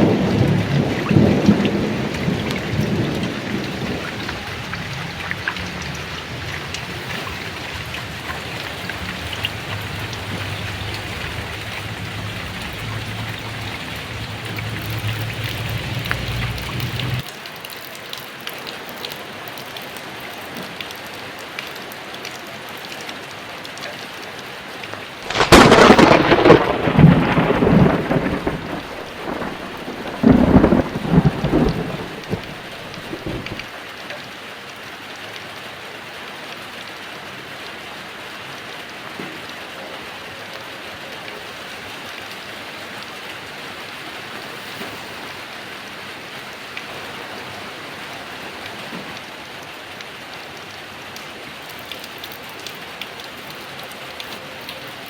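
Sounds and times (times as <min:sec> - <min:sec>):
loud thunderclap: 0:00.0 - 0:17.2, 0:25.3 - 0:33.7
low thunder rumble: 0:00.0 - 0:17.2, 0:25.3 - 0:33.7
heavy rain: 0:00.0 - 0:55.0.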